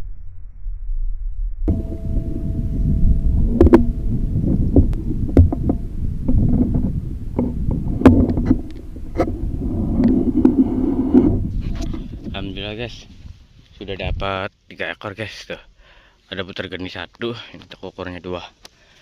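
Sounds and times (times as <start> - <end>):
wind rumbling on microphone: 0.0 - 14.4.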